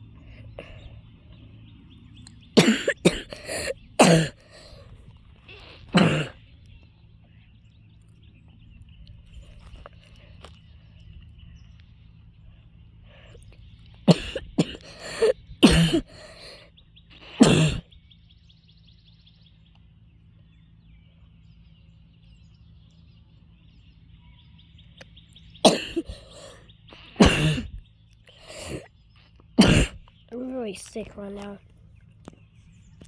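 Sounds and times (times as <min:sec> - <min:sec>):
person coughing: 0:02.6 - 0:04.8, 0:05.9 - 0:06.4, 0:14.1 - 0:16.6, 0:17.4 - 0:17.8, 0:25.6 - 0:26.6, 0:27.2 - 0:27.8, 0:28.4 - 0:28.9, 0:29.6 - 0:30.0.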